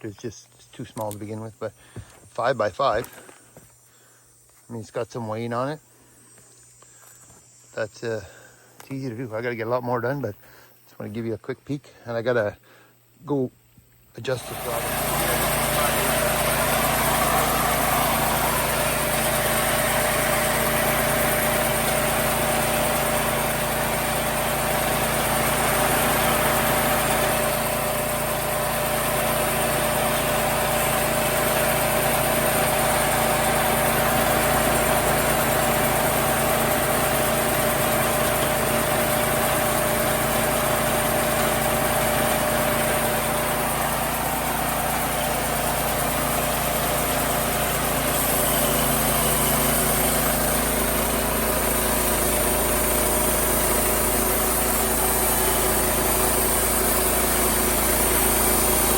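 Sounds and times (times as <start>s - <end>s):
small gasoline engine running: 14.2s - 58.9s.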